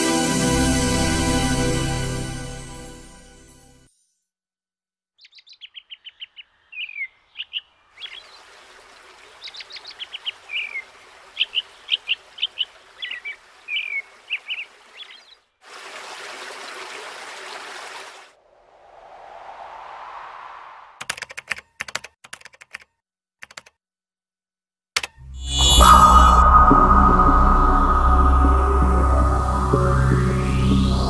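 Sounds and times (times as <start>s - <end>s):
birds chirping: 5.2s - 15.5s
loud rushing noise: 18.4s - 21.0s.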